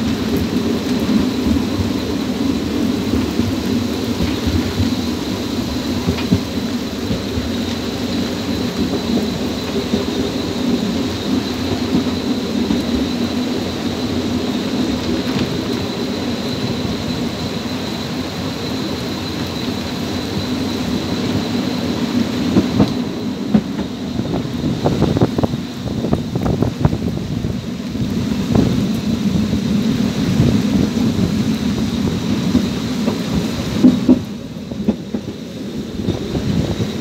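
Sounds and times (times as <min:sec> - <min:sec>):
rain: 0:00.0 - 0:37.0
train rumbling along track: 0:00.0 - 0:37.0
wind on microphone: 0:20.5 - 0:37.0.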